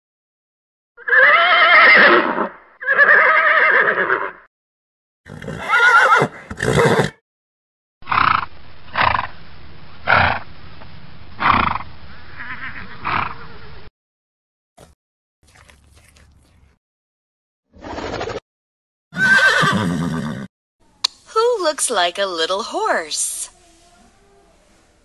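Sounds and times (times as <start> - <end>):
horses whinnying: 1.0 - 4.4, 5.3 - 7.2, 12.4 - 13.6, 19.2 - 20.5.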